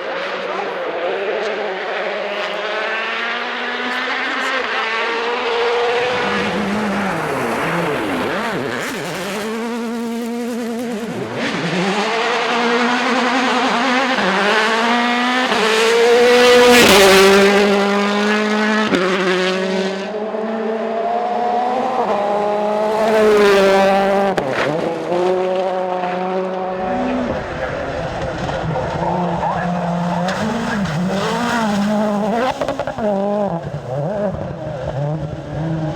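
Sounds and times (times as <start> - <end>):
rally car engines revving: 0.0 - 35.9.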